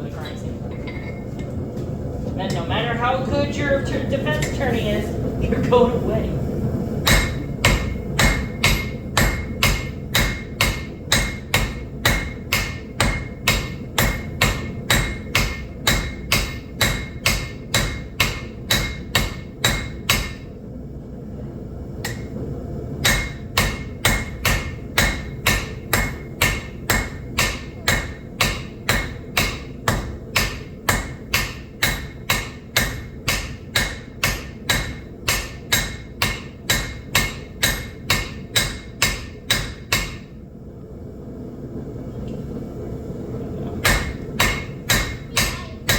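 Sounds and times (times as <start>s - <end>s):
steady low rumble: 0.0s - 45.9s
hammer striking metal on anvil: 7.0s - 20.5s, 22.0s - 22.4s, 23.0s - 40.4s, 43.8s - 45.9s.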